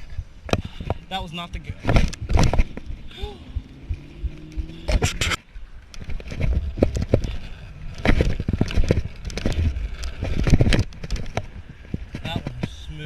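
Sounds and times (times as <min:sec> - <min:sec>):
scooter rolling on concrete: 0:01.6 - 0:13.0
scooter knocks and scrapes: 0:01.8 - 0:02.9, 0:06.0 - 0:12.8.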